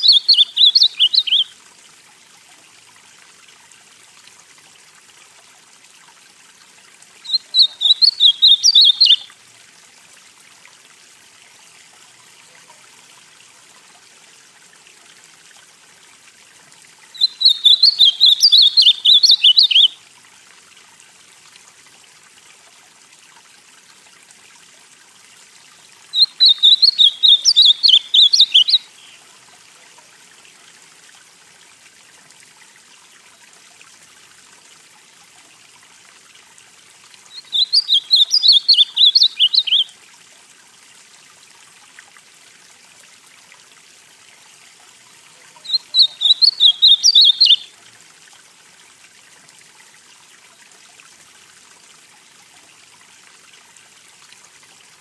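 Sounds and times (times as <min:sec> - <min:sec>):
bird singing warbled phrases: 0:00.0 - 0:01.5, 0:07.2 - 0:09.3, 0:17.2 - 0:20.0, 0:26.1 - 0:29.2, 0:37.3 - 0:39.9, 0:45.4 - 0:47.7
faint steady hiss: 0:00.0 - 0:55.0.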